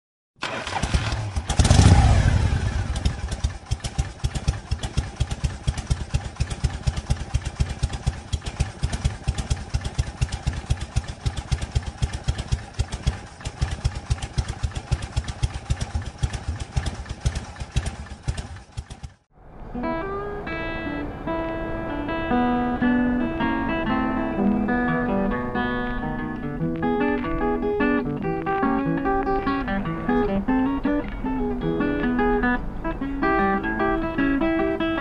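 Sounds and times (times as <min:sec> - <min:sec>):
motorcycle engine idling: 0:00.4 - 0:19.3
motorcycle engine revving: 0:00.4 - 0:30.2.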